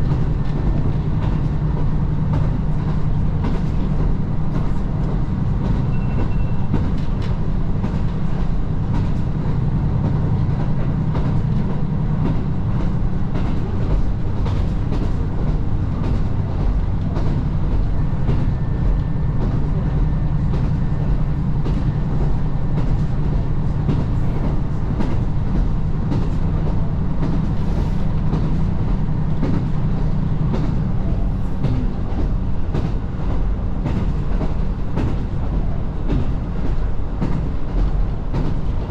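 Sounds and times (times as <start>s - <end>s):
rail clicks: 0.0s - 38.9s
railcar engine rumble: 0.0s - 38.9s.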